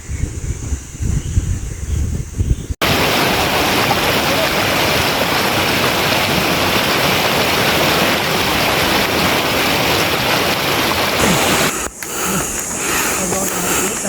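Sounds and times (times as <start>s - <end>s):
mountain stream flowing: 2.8s - 14.0s.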